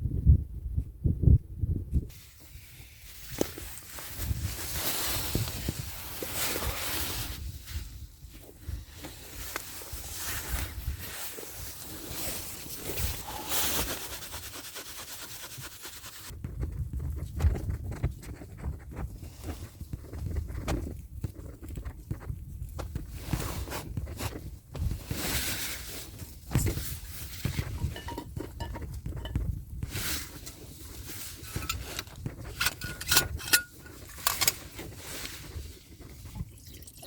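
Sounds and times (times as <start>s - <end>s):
knocks and rustles near microphone: 26.5s - 30.5s.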